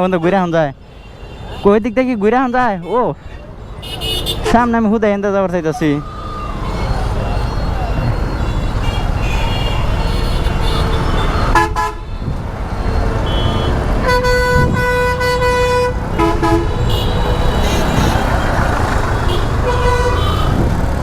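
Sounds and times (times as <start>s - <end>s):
wind and road rumble: 1.4s - 21.0s
vehicle horn honking: 2.8s - 4.6s, 8.4s - 12.3s, 13.1s - 18.4s, 19.2s - 20.7s.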